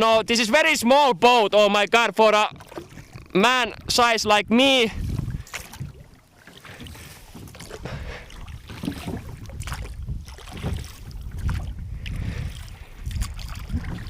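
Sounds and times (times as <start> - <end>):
water sloshing: 0.0 - 14.0
oars knocking on rowboat: 2.1 - 14.0
wind rumble on microphone: 2.5 - 6.2, 6.8 - 14.0.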